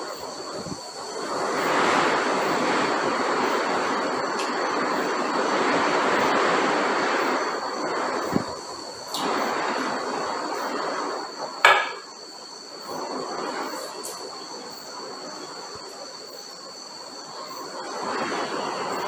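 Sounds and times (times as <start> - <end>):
high-pitched insect drone: 0.0 - 19.0
sharp knock with ring: 11.6 - 12.1.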